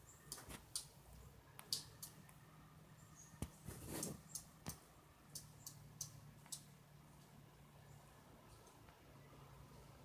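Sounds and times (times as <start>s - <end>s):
soft rustle: 3.4s - 4.3s.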